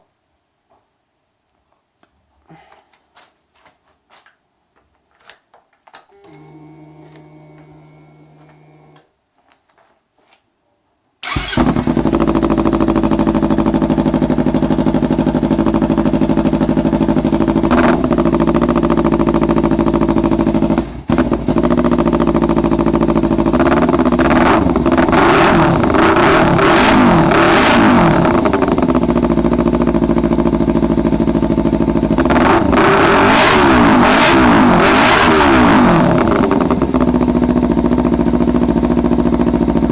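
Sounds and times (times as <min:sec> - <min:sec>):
clicks: 0:04.1 - 0:09.9
motorcycle engine revving: 0:11.2 - 0:39.9
motorcycle engine idling loudly: 0:11.3 - 0:39.9.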